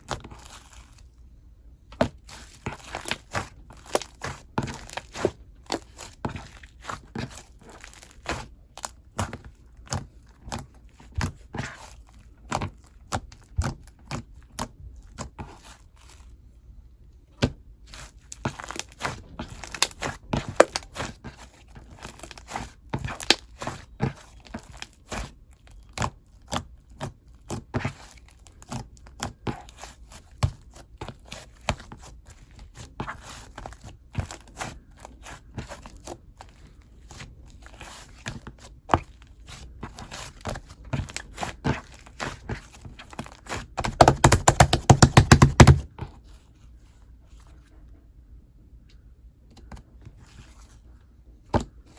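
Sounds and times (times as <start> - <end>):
hands squishing clay slime: 0.0 - 16.5, 17.1 - 47.8.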